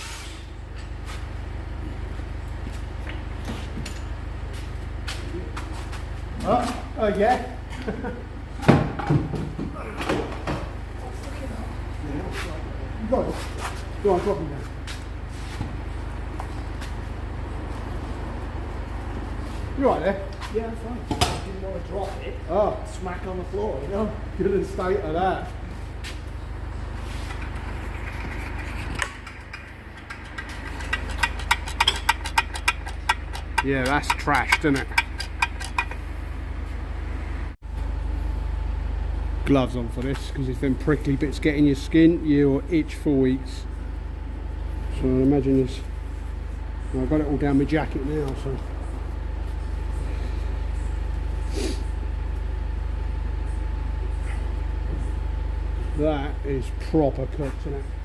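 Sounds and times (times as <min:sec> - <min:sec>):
steady low hum: 0:00.0 - 0:58.0
machine droning with pulse: 0:13.9 - 0:58.0
rapid metallic clicks: 0:27.3 - 0:36.0.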